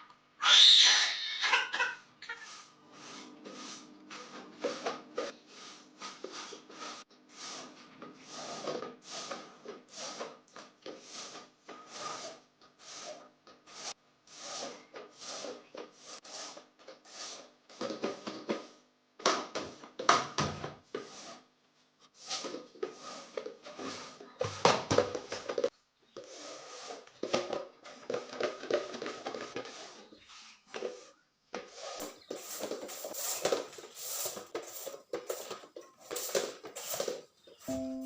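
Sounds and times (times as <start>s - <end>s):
short rubbing strokes: 31.8s - 38.0s.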